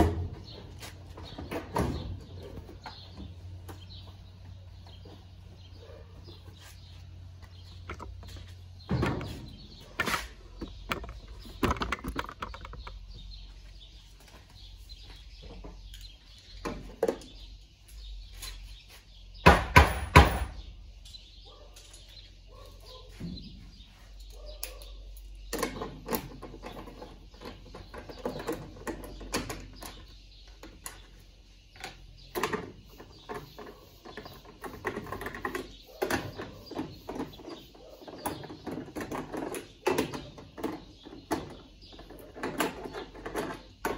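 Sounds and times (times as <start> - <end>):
clatter of parts and tools: 7.6 - 13.2.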